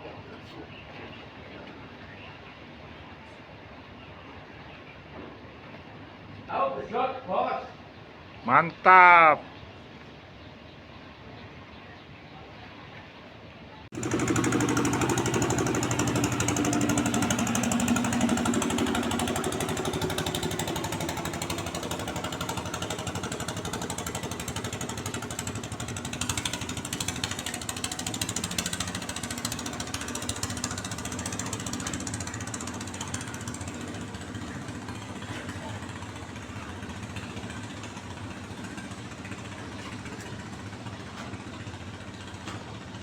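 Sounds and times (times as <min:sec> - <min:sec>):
small boat engine knocking: 0:13.9 - 0:43.0.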